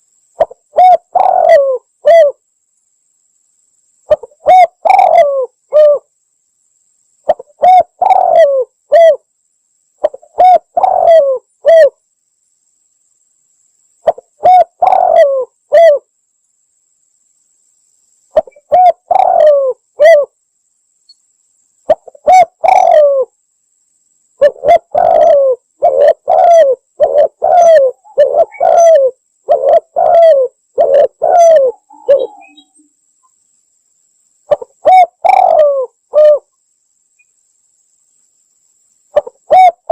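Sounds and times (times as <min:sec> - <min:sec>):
dove cooing: 0:00.4 - 0:02.4, 0:04.1 - 0:06.1, 0:07.3 - 0:09.2, 0:10.0 - 0:12.0, 0:14.0 - 0:16.1, 0:18.4 - 0:20.3, 0:21.9 - 0:23.3, 0:24.4 - 0:32.8, 0:34.5 - 0:36.5, 0:39.1 - 0:39.9.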